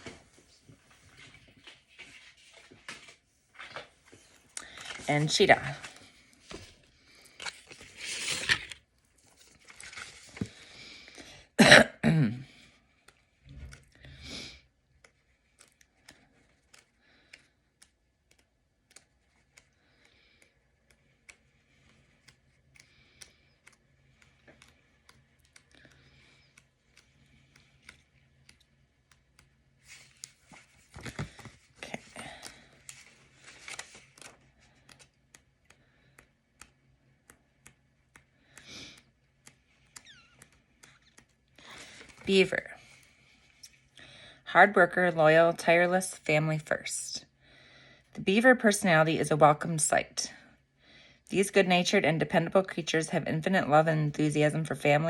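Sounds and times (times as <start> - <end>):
soft rustling: 0.0 - 10.7, 23.5 - 35.5
person coughing: 11.6 - 12.5
small clicks: 15.0 - 30.4, 32.4 - 42.2.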